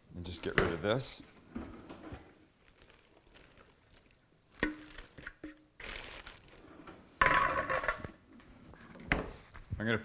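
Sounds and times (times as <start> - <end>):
rustling: 1.2 - 7.1.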